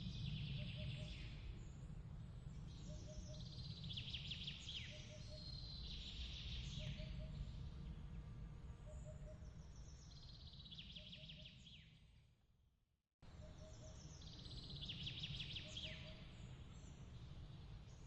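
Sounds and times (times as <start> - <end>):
low steady rumble: 0.0 - 10.5.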